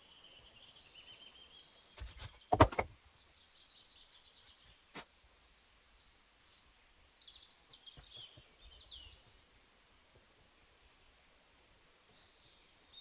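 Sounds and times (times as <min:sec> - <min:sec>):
faint bird chirps: 0:03.2 - 0:13.0.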